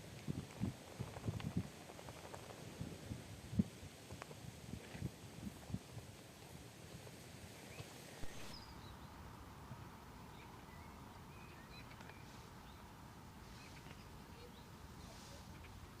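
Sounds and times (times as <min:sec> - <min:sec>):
distant bird chirps: 0:07.6 - 0:09.2, 0:10.2 - 0:16.0.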